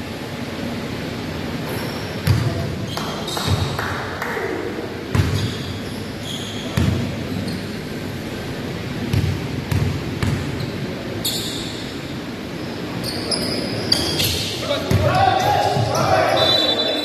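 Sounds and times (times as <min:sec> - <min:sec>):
shoe squeaks: 0:01.7 - 0:03.7, 0:05.2 - 0:07.9, 0:10.6 - 0:17.0
basketball bouncing: 0:02.2 - 0:02.6, 0:05.1 - 0:05.7, 0:06.7 - 0:07.1, 0:09.0 - 0:10.7.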